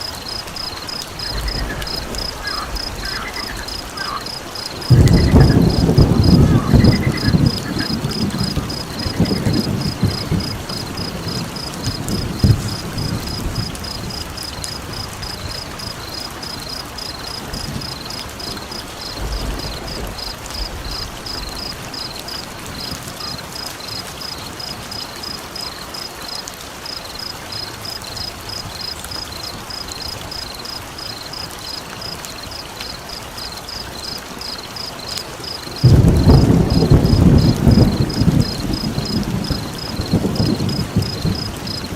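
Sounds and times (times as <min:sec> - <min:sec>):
low thunder rumbles: 0:00.0 - 0:24.1, 0:33.7 - 0:41.9
rain-like hiss: 0:00.0 - 0:41.9.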